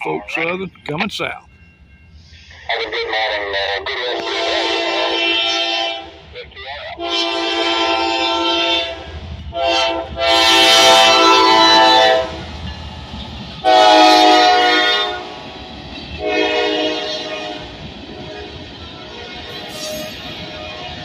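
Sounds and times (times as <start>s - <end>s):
low train rumble: 0.0s - 21.0s
locomotive air horn blasts: 4.2s - 6.2s, 7.0s - 12.5s, 13.6s - 15.4s, 16.2s - 18.5s.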